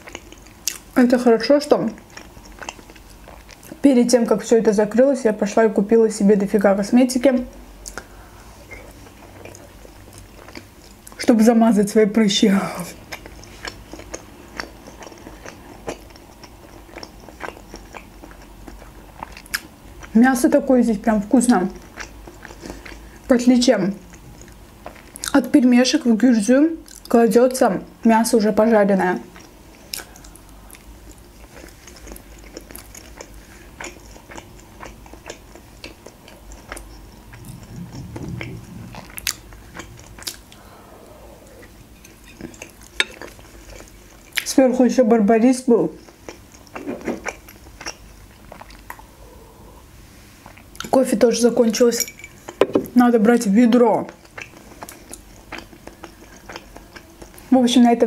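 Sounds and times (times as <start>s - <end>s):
chewing with wet mouth clicks: 0.0s - 1.0s, 1.8s - 3.8s, 7.8s - 8.1s, 8.7s - 11.2s, 13.0s - 20.2s, 21.8s - 23.1s, 29.3s - 40.6s, 41.6s - 44.6s, 46.0s - 49.1s, 54.1s - 57.5s.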